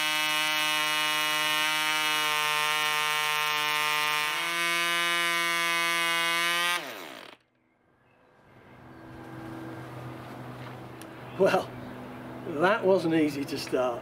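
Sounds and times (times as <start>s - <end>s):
model aircraft engine buzzing: 0.0s - 7.4s.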